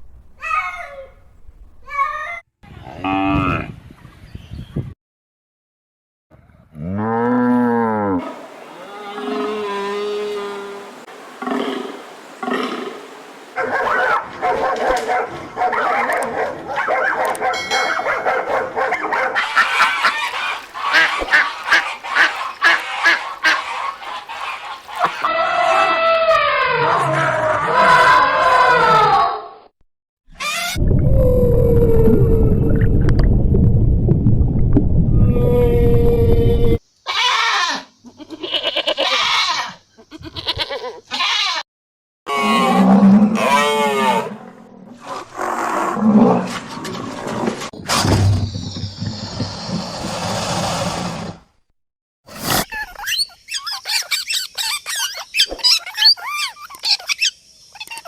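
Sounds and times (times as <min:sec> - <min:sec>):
animal calls: 0:08.2 - 0:29.2
fowl honking calls: 0:19.1 - 0:25.3.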